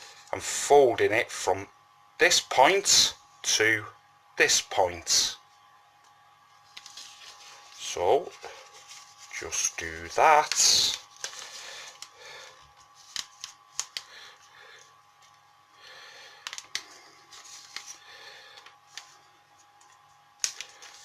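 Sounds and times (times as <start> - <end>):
paper being folded: 6.7 - 12.1, 12.8 - 14.1, 16.5 - 18.0.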